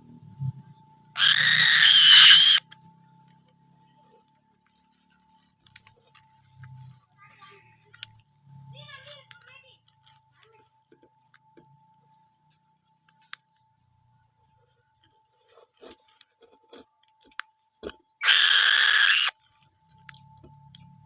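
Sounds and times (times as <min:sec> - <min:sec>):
beak tearing at prey: 0:01.2 - 0:02.8, 0:18.2 - 0:19.6.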